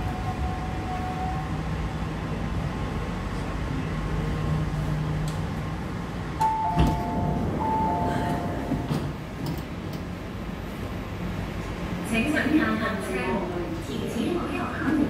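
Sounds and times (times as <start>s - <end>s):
two-note falling chime: 6.4s - 8.9s.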